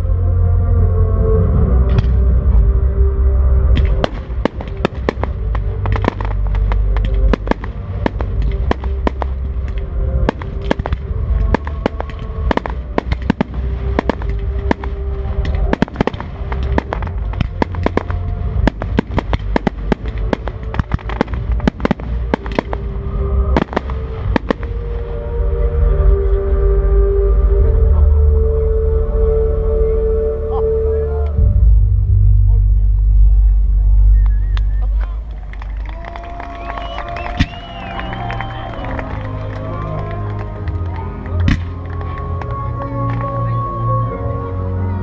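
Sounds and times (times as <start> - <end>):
deep rumble: 0.0 - 45.0
fireworks bangs and cracks: 3.7 - 24.9.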